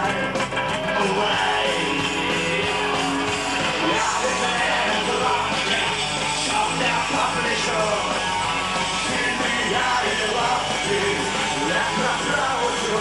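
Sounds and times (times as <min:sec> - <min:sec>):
punk rock band playing: 0:00.0 - 0:13.0.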